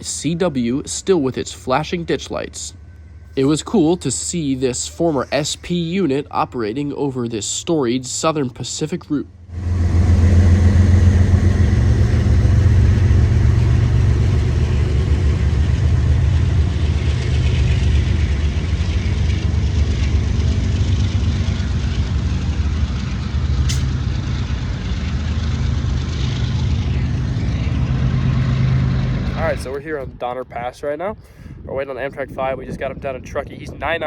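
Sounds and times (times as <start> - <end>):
motor vehicle engine drone: 0.0 - 31.0
sharp click: 23.7 - 23.9.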